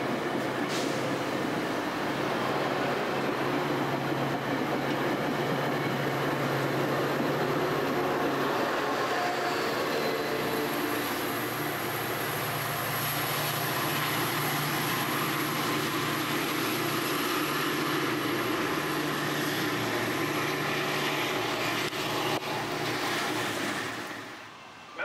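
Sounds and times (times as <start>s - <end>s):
train rolling hiss: 0.4s - 4.2s, 6.0s - 24.5s.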